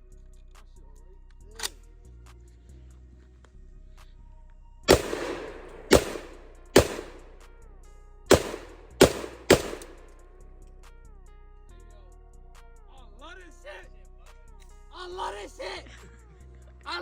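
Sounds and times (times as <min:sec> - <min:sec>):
echoing gunshots: 0:04.9 - 0:07.5, 0:08.3 - 0:10.2.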